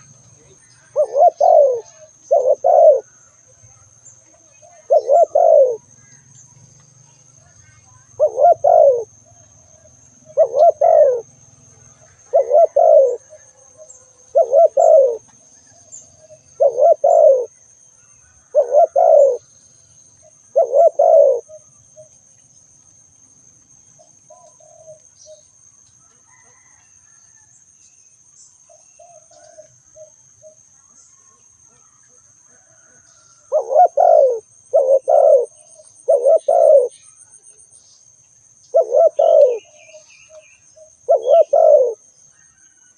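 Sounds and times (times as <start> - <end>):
dove cooing: 0.0 - 6.2, 8.0 - 17.6, 18.4 - 19.5, 20.2 - 22.1, 24.0 - 25.4, 26.3 - 26.8, 28.7 - 30.6, 32.6 - 37.0, 38.7 - 42.0.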